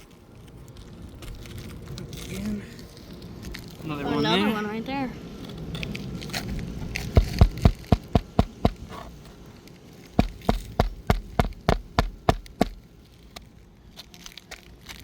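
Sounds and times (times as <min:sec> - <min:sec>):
hammer striking shingle roof: 0:07.1 - 0:09.0, 0:10.2 - 0:12.8.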